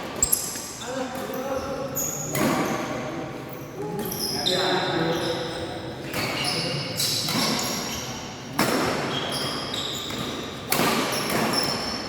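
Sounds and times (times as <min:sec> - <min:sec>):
shoes squeaking on court: 0:00.1 - 0:02.9, 0:04.0 - 0:12.0
rackets hitting shuttlecock: 0:10.1 - 0:11.8.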